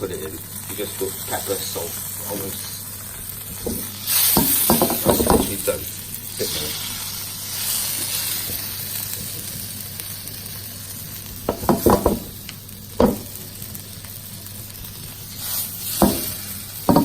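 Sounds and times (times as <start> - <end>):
fish sizzling in a pan: 0.0 - 17.0.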